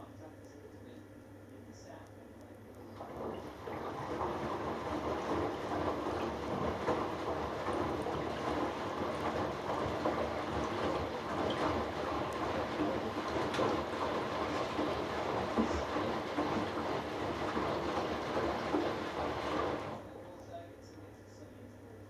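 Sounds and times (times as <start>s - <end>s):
washing machine drum tumbling: 2.9s - 20.2s.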